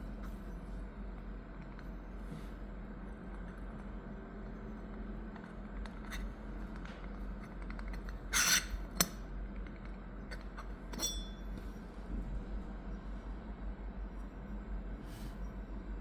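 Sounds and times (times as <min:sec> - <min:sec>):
ringing clink of teapot: 0:10.9 - 0:11.5.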